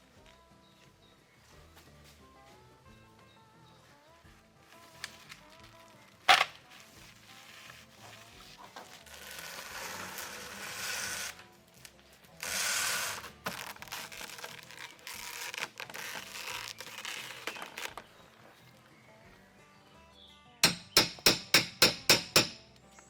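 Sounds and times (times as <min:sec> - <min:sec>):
faint background music: 0:00.0 - 0:23.0
crunching and crackling: 0:04.2 - 0:19.1.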